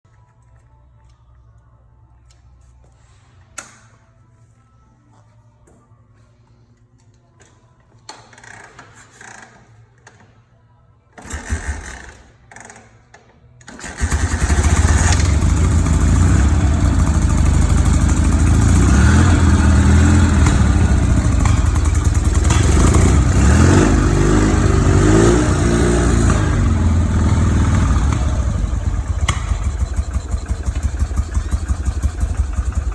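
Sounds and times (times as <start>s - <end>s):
motorcycle engine starting and running: 11.2s - 12.3s, 13.7s - 32.9s.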